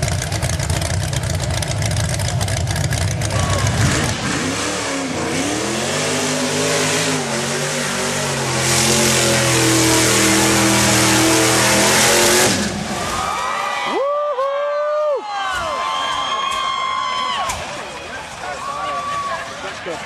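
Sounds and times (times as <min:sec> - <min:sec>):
truck engine revving: 0:00.0 - 0:13.2.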